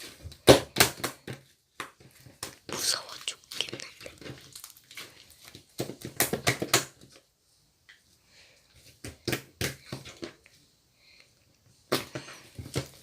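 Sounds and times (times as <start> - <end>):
slime crackling and popping: 0.0 - 7.0.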